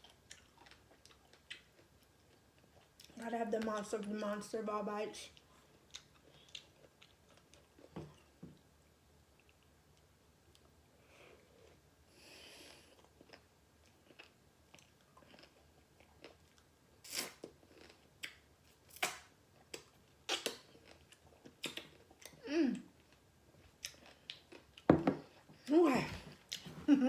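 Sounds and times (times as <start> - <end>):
wet crunching while chewing: 13.0 - 22.4
person humming: 22.4 - 22.9.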